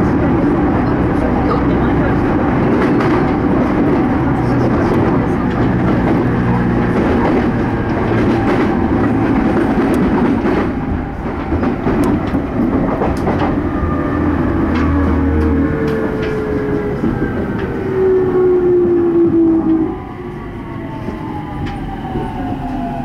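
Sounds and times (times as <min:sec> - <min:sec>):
train wheel-on-rail noise: 0:00.0 - 0:23.0
clicks from rail joints: 0:11.3 - 0:13.6, 0:14.7 - 0:17.8.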